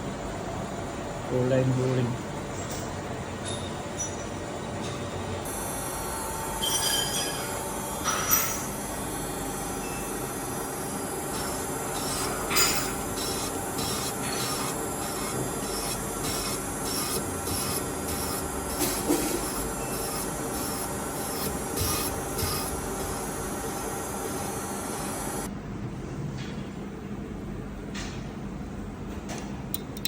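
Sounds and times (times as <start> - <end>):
boring machine cutting metal: 10.7 - 23.4.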